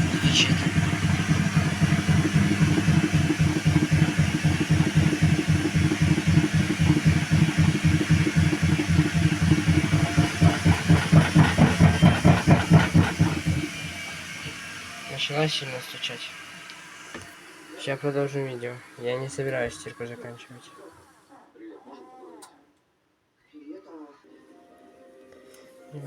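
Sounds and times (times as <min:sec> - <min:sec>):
rhythmic knocking: 0:00.0 - 0:14.6
washing machine drum spinning: 0:00.0 - 0:15.6.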